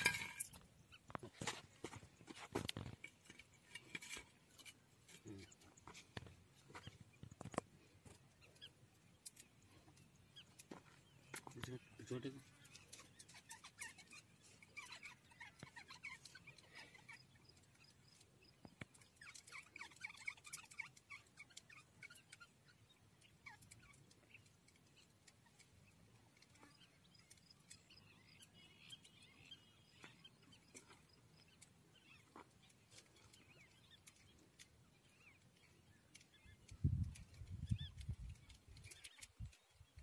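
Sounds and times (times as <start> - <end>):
faint bird chirps: 0.0 - 40.0.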